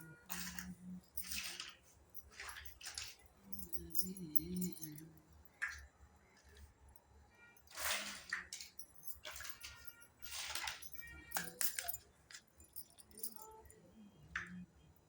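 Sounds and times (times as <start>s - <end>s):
toy pieces clicking and clinking: 9.0s - 12.0s.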